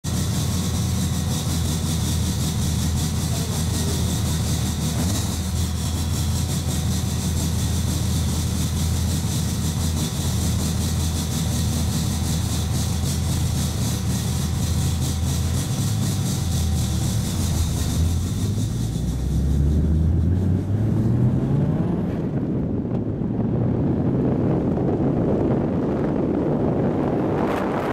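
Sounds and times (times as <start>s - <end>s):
car engine idling: 0.0s - 20.6s.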